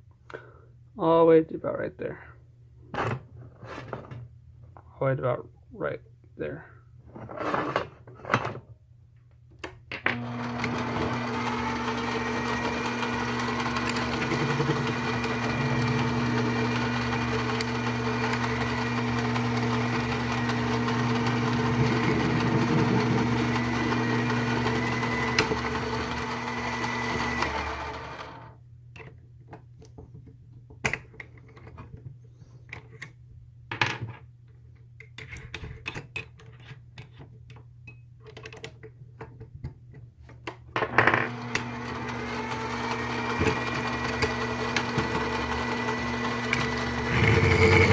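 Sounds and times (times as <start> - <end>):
drill bit boring into metal: 10.1 - 28.4, 41.2 - 47.9
lathe motor whine: 10.1 - 28.5, 41.3 - 47.9.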